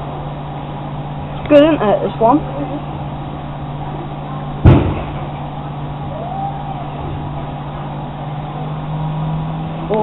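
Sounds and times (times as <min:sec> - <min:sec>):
sharp knock: 0:04.6 - 0:05.2.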